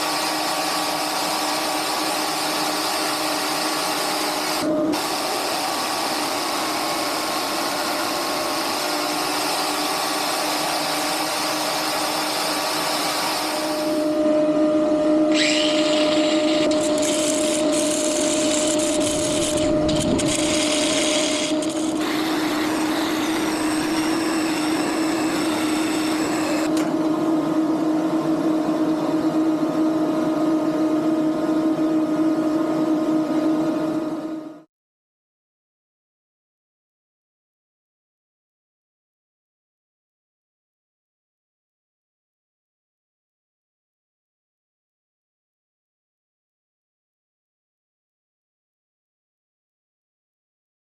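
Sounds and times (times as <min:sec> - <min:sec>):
power tool motor running: 0:00.0 - 0:27.0.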